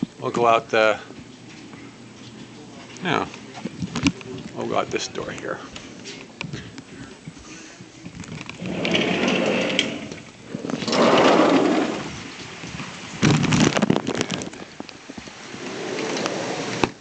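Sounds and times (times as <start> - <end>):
plastic sheeting crinkling: 10.4 - 17.0.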